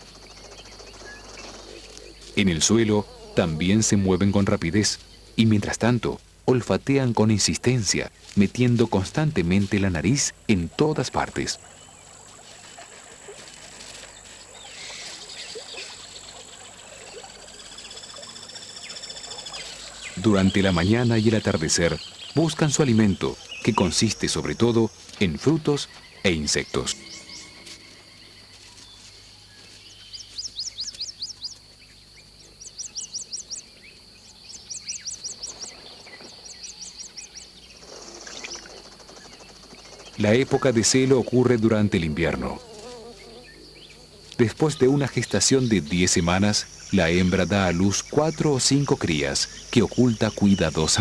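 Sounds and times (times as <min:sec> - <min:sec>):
insects chirring: 0:00.0 - 0:51.0
small ticks: 0:28.5 - 0:31.8, 0:44.2 - 0:44.4.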